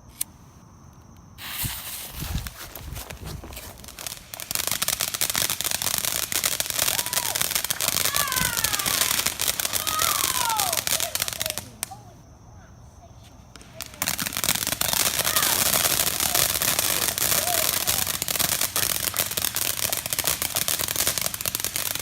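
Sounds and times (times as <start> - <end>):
fireworks hissing: 1.4 - 12.2, 13.5 - 22.0
rapid crackling pops: 1.5 - 12.0, 13.6 - 22.0.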